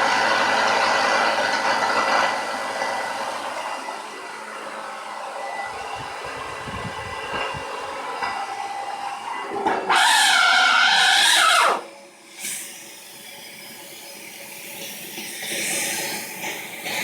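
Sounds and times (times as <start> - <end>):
vacuum cleaner running: 0.0 - 17.0
vacuum cleaner high-pitched scream: 7.9 - 12.6.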